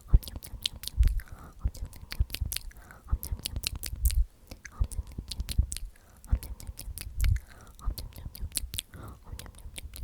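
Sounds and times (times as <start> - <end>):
wet tongue and lip clicks: 0.1 - 10.0
person whispering: 4.5 - 10.0.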